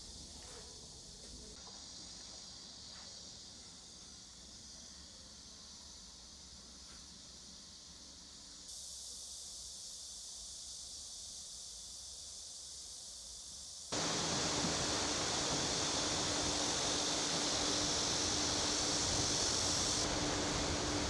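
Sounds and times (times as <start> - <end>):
outdoor background noise: 13.9 - 21.0
faint steady hum: 14.0 - 21.0
loud even rush: 14.0 - 21.0.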